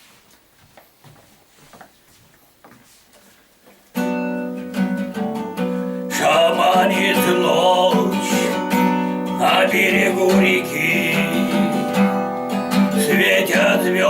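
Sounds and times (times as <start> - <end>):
acoustic guitar strumming: 3.9 - 14.0
person singing: 6.1 - 14.0.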